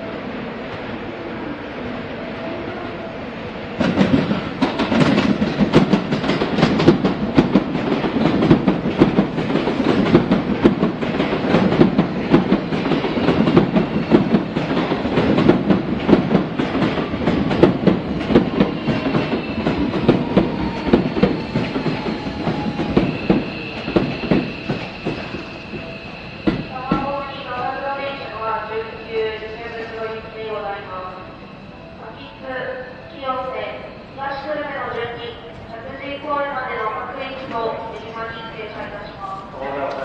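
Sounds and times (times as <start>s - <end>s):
train rumble: 0.0s - 40.0s
train wheels clattering over joints: 3.8s - 27.2s.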